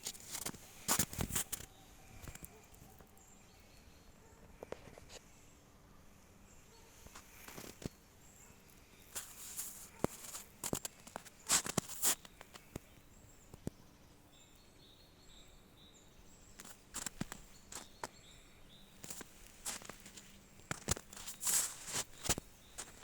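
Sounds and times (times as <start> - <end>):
footsteps crunching on forest floor: 0.0 - 1.7, 7.1 - 7.9, 9.1 - 12.8, 16.6 - 18.2, 18.9 - 23.0
faint high bird chirps: 1.4 - 23.0.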